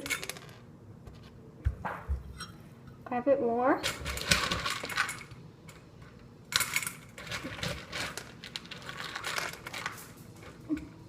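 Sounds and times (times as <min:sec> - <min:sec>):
dog food rattling into bowl: 0:06.6 - 0:10.6.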